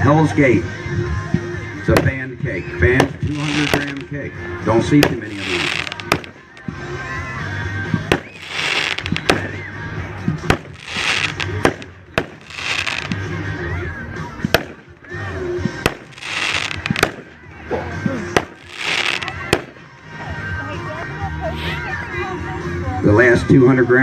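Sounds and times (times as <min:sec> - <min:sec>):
firework cake shots cracking: 0:02.9 - 0:04.1, 0:05.0 - 0:06.8, 0:08.0 - 0:09.7, 0:10.3 - 0:13.4, 0:14.4 - 0:17.4, 0:18.3 - 0:20.0.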